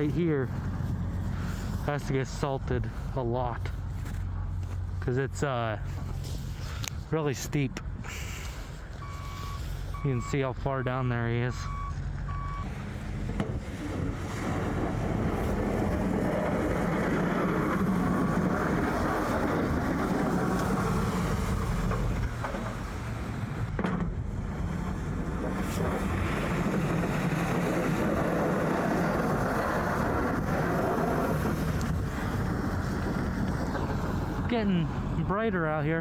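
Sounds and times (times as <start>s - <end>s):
truck engine and road noise: 0.0s - 36.0s.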